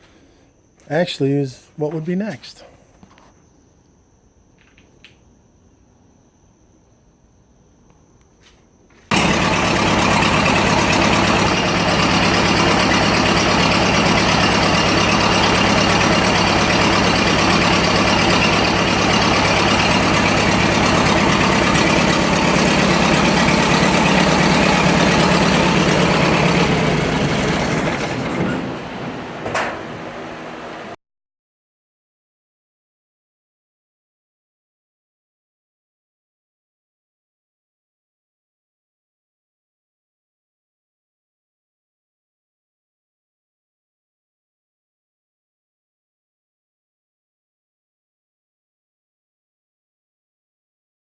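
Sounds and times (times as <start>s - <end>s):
old car engine running: 9.1s - 28.9s.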